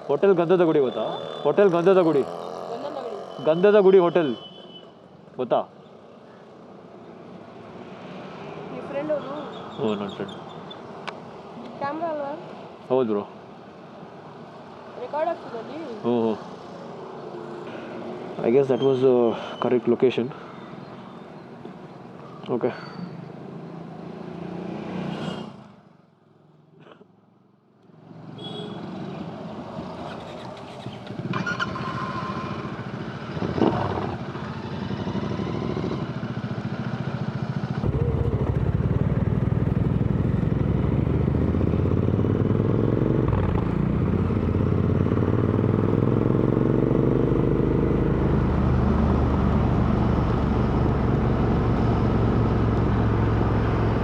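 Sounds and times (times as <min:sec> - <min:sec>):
road noise: 0:00.0 - 0:54.0
motorcycle engine exhaust: 0:37.8 - 0:46.7.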